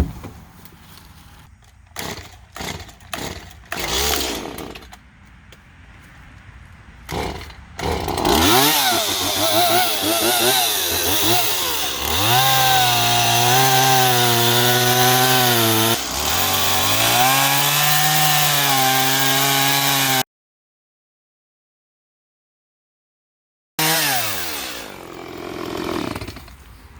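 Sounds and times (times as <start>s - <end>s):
chainsaw cutting through log: 2.0s - 4.9s, 7.1s - 20.2s, 23.8s - 26.9s.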